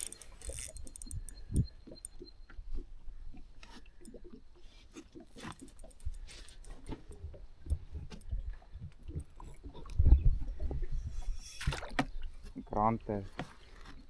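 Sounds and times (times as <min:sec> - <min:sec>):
rustling: 0:00.0 - 0:01.6
handling clicks and taps: 0:00.0 - 0:02.2, 0:05.3 - 0:08.3.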